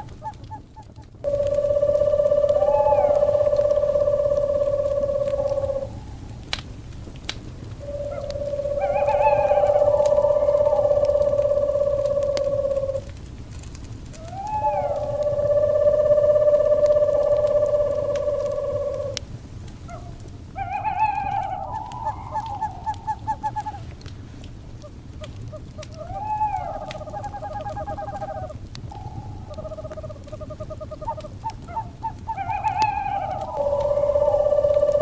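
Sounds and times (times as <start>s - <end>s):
owl calling: 0.0s - 6.5s, 7.6s - 13.1s, 14.2s - 19.2s, 19.8s - 23.9s, 24.8s - 35.0s
wood fire crackling: 0.0s - 35.0s
low rumble: 1.2s - 19.4s, 33.4s - 35.0s.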